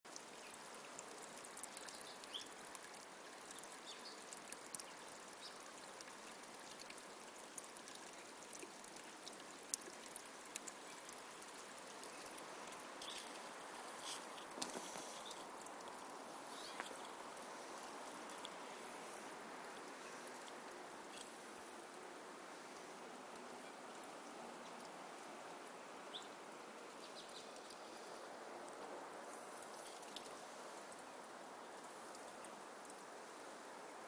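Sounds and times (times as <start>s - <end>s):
small ticks and splashes: 0.1s - 34.0s.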